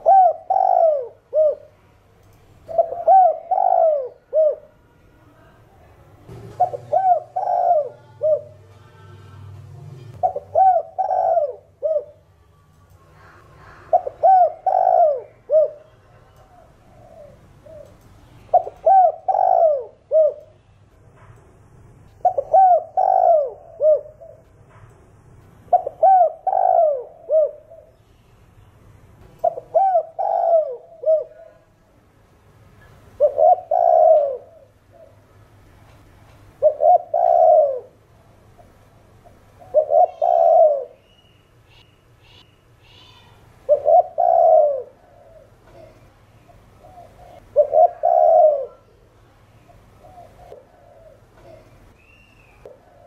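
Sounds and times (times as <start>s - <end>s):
dove cooing: 0.0s - 1.8s, 2.7s - 4.8s, 6.3s - 9.5s, 10.2s - 12.2s, 13.2s - 20.5s, 22.2s - 24.5s, 25.7s - 28.0s, 29.4s - 31.7s, 33.2s - 35.2s, 36.6s - 38.0s, 39.2s - 41.0s, 43.7s - 49.0s, 49.7s - 51.9s.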